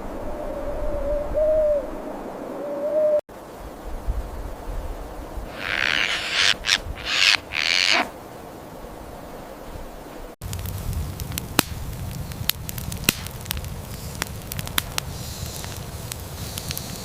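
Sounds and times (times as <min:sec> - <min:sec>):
campfire crackling: 0:05.0 - 0:17.0.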